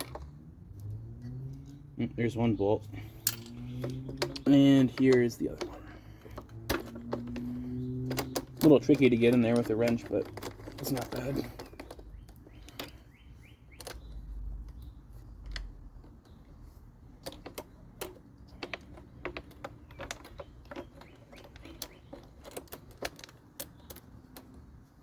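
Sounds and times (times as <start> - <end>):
wrench clicking on bolts: 3.0 - 16.4.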